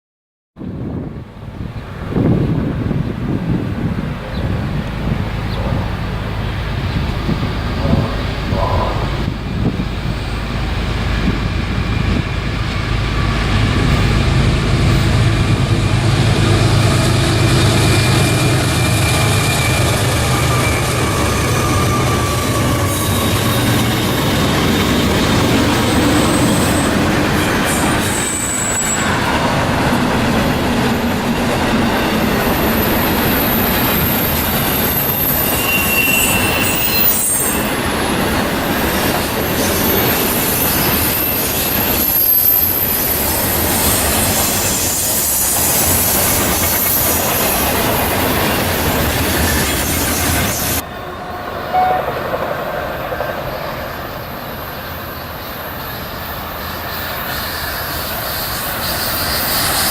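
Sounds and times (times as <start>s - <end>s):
train wheels running on rails: 0.9s - 59.9s
high-pitched wheel squeal: 17.9s - 25.0s, 25.9s - 29.2s, 32.6s - 47.8s.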